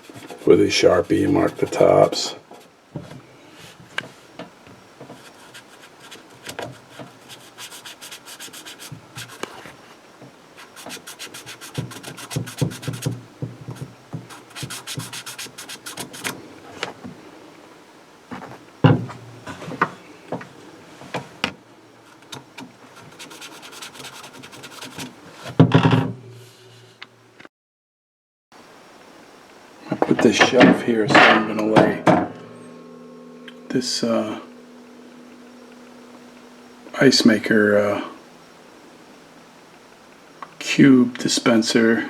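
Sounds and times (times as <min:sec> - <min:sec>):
marker scratching on plastic: 0:05.2 - 0:09.6, 0:10.6 - 0:16.4, 0:23.0 - 0:25.1.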